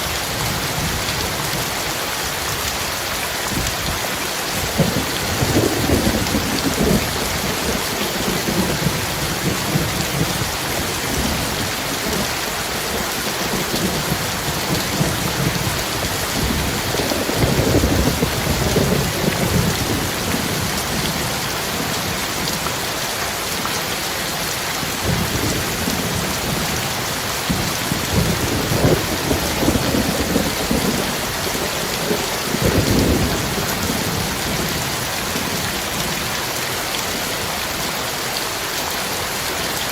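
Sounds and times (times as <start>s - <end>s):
heavy rain: 0.0s - 39.9s
thunder rumbling: 4.5s - 22.5s, 24.9s - 36.3s.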